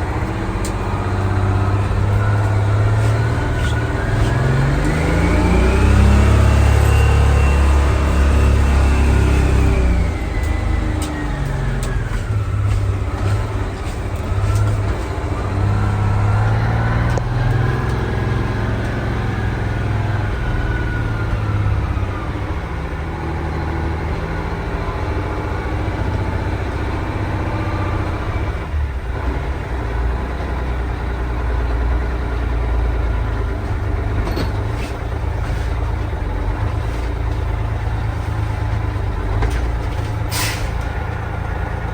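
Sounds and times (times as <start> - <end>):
diesel engine idling: 0.0 - 41.9.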